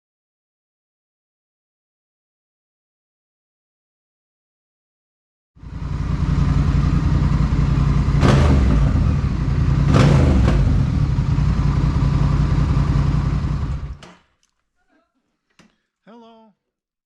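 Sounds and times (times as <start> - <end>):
motorcycle engine running: 5.6 - 14.0.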